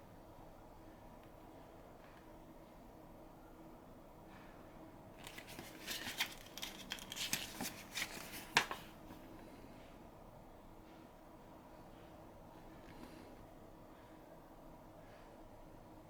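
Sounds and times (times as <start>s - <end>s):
paper pages flicking: 5.2s - 9.0s
paper pages rustling: 5.2s - 9.1s.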